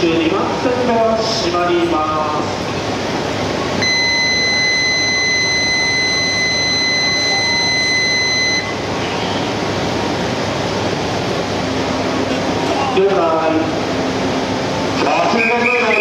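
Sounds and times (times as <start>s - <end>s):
busy station platform noise: 0.0s - 16.0s
high warning beep: 3.8s - 8.8s.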